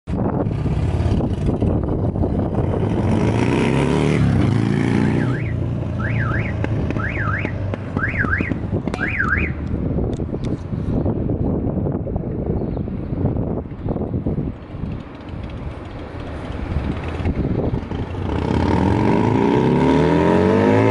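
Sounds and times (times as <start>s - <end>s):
motorcycle engine accelerating: 0.2s - 9.5s, 14.8s - 20.9s
electronic alarm tone sweeping: 5.2s - 9.6s.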